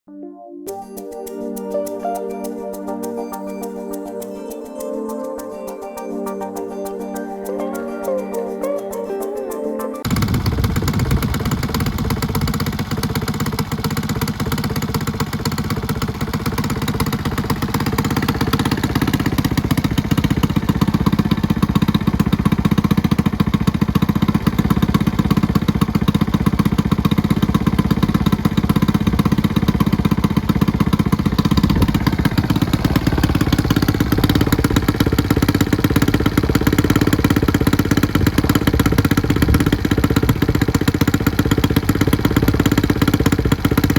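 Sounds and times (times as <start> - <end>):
motorcycle engine idling: 10.0 - 43.9.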